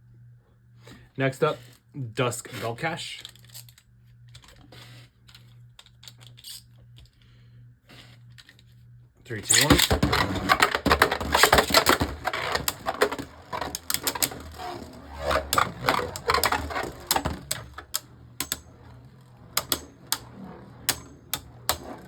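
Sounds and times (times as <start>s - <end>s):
spinning tops clacking: 9.5s - 22.0s.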